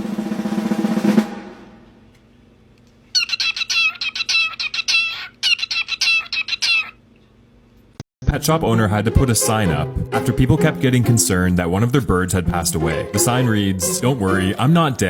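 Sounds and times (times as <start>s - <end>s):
drum roll: 0.0s - 2.1s, 12.5s - 14.7s
small bird chirping: 3.1s - 7.1s.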